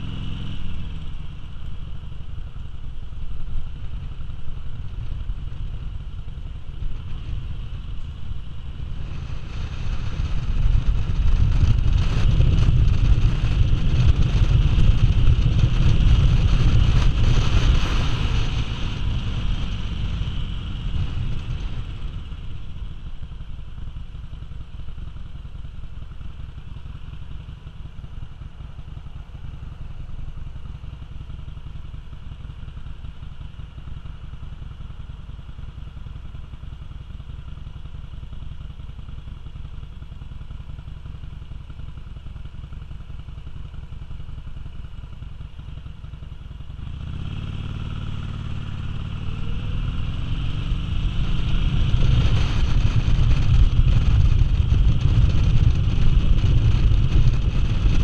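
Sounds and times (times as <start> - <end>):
motorcycle engine idling: 0.0 - 58.0
motorcycle engine revving: 0.0 - 58.0
wind rush: 50.4 - 58.0.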